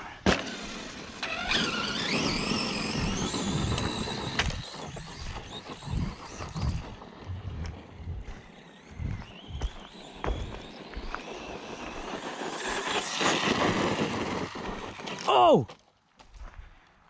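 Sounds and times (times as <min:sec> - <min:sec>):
tyre and drivetrain noise: 0:00.3 - 0:16.6
electric motor whine: 0:00.4 - 0:15.3.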